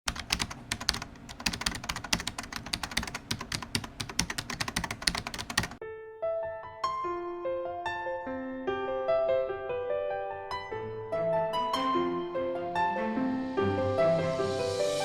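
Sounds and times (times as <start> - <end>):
keyboard typing clicks: 0.1 - 5.8
soft piano notes: 5.8 - 15.0.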